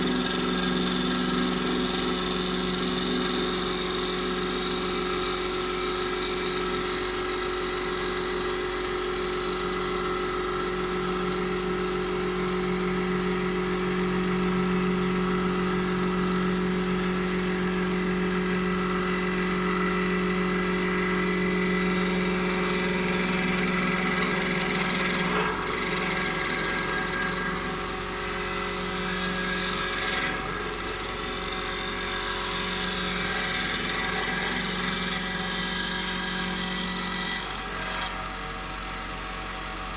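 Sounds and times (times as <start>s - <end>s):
wood-turning lathe humming and whining: 0.0s - 39.9s.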